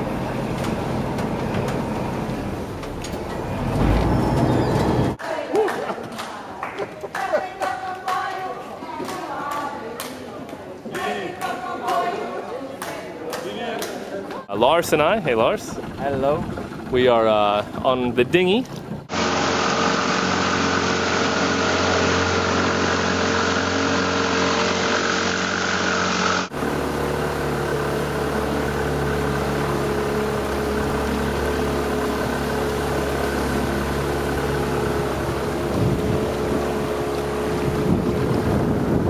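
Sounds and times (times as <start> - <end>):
wind: 0.0 - 39.0
outboard motor running: 15.3 - 39.0
water noise: 19.1 - 39.0.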